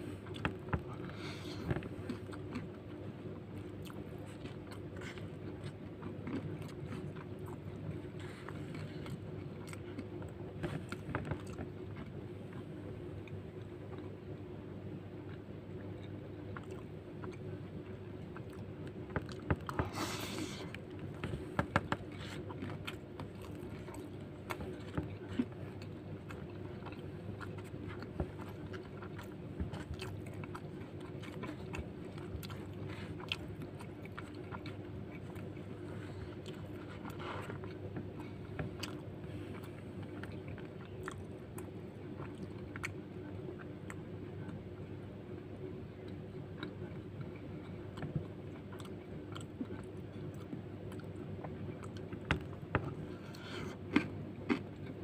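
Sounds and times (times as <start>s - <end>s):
steady low hum: 0.0s - 55.0s
close-up chewing and biting: 0.1s - 14.1s, 15.3s - 44.6s, 46.1s - 55.0s.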